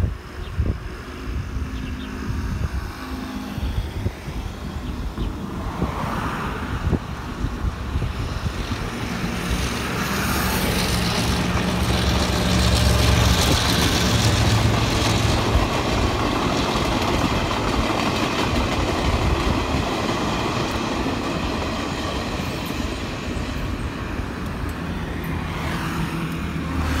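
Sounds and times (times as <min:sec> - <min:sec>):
vehicle passing by: 0:25.4 - 0:27.0.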